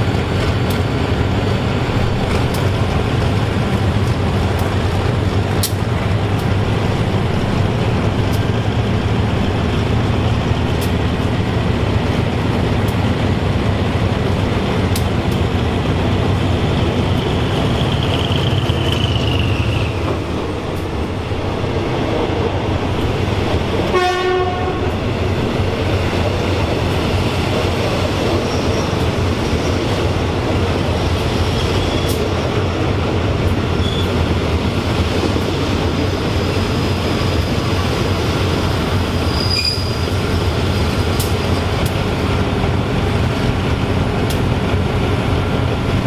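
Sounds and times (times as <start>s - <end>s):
train wheels rumbling on rails: 0.0s - 46.0s
train horn blast: 23.9s - 25.0s.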